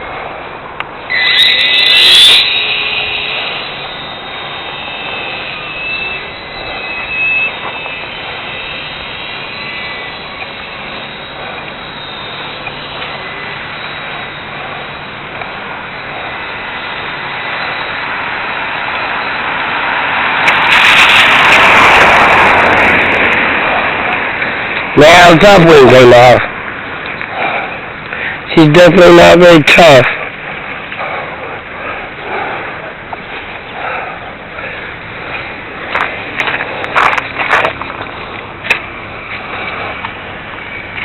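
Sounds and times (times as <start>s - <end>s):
model plane motor whining: 1.1s - 19.3s.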